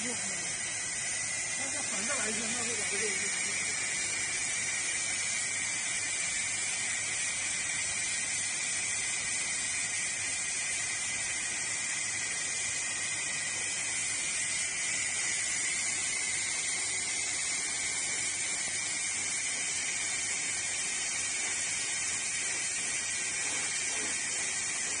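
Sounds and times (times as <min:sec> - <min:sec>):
thin high whine: 0:00.0 - 0:07.7
laser ablation hiss: 0:00.0 - 0:25.0.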